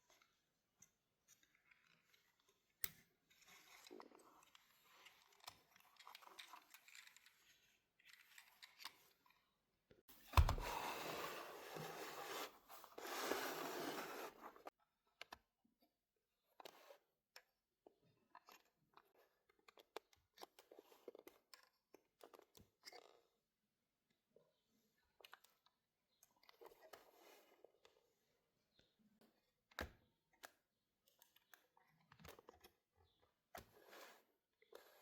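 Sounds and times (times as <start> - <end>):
handling thump: 10.3 - 10.8.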